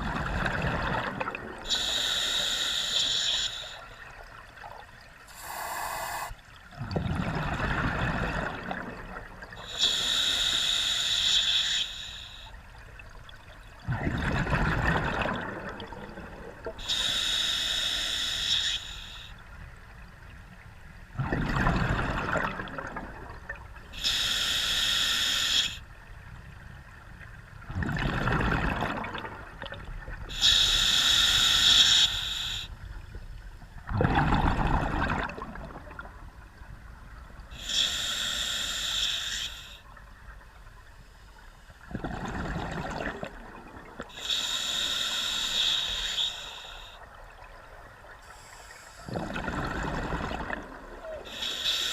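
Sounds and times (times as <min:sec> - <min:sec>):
regulator hissing inhale: 0:01.7 - 0:03.9, 0:05.3 - 0:06.4, 0:09.7 - 0:12.6, 0:16.8 - 0:19.4, 0:24.0 - 0:25.8, 0:30.3 - 0:32.8, 0:37.6 - 0:39.9, 0:44.1 - 0:47.1, 0:48.2 - 0:49.1, 0:51.3 - 0:51.9
bubbling exhale underwater: 0:13.8 - 0:16.8, 0:21.2 - 0:23.4, 0:27.7 - 0:30.4, 0:33.9 - 0:36.2, 0:41.9 - 0:44.2, 0:49.1 - 0:51.5.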